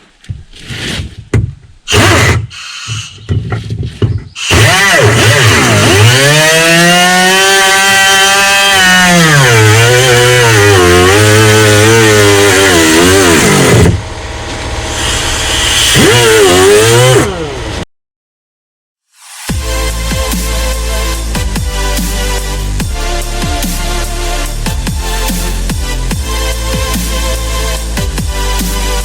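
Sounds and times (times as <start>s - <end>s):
shop vacuum motor whining: 4.4s - 17.8s.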